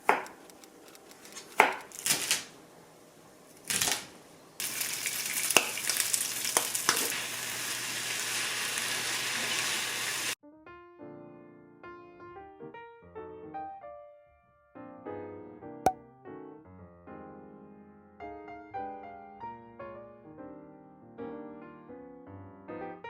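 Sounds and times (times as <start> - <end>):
utensil clicks: 0.0 - 2.0
crunching and rustling: 0.0 - 2.5
food sizzling in a pan: 4.6 - 10.4.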